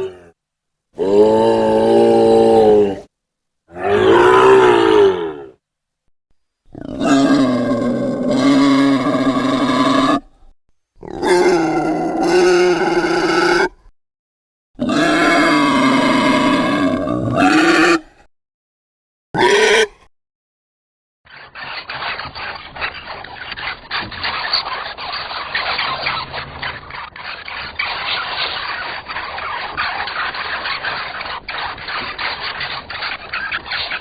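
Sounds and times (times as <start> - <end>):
monster bat calls: 3.7 - 5.6, 11.0 - 13.7, 19.4 - 20.0.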